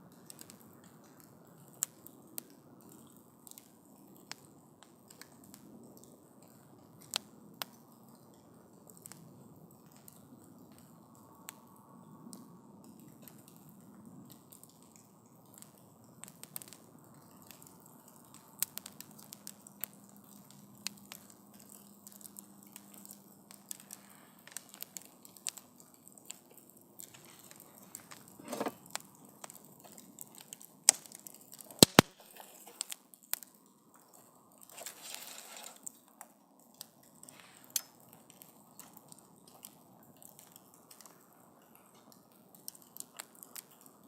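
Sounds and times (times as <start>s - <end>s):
campfire crackling and popping: 0.0s - 44.0s
fire hiss: 30.9s - 33.0s, 34.7s - 35.9s, 37.2s - 38.0s.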